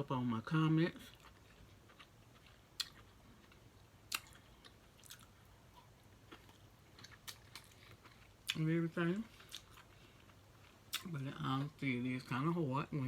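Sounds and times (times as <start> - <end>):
person chewing: 0.9 - 11.3.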